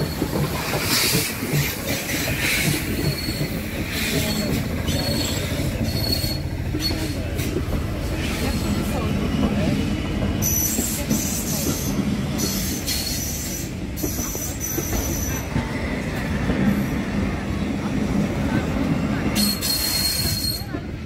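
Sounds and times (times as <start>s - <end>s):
wheels rumbling on rail: 0.0s - 21.0s
high-pitched wheel squeal: 3.0s - 7.2s, 19.4s - 20.7s.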